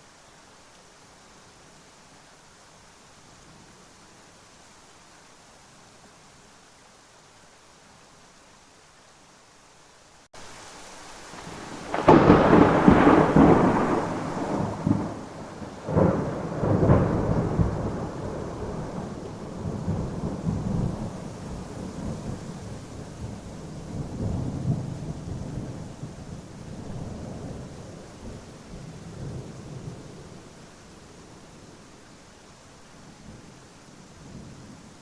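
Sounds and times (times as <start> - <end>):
steady rain: 0.0 - 35.0
thunder rumbling: 11.3 - 30.4.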